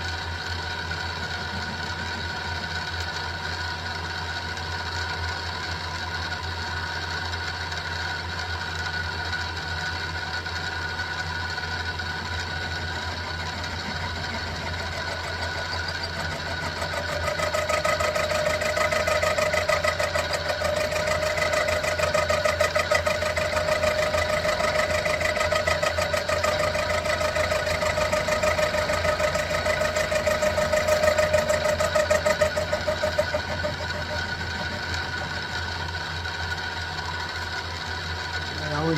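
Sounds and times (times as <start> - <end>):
pulsing metal cutting sound: 0.0 - 3.7, 11.2 - 37.4
milling machine motor whine: 0.0 - 4.9, 10.4 - 38.9.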